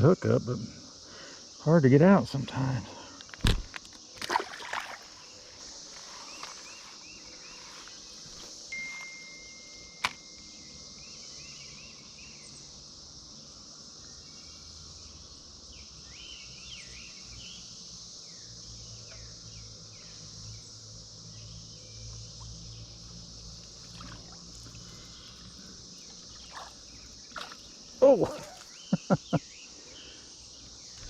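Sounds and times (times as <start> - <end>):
cicadas buzzing chorus: 0.0 - 31.0
birds chirping: 21.4 - 31.0.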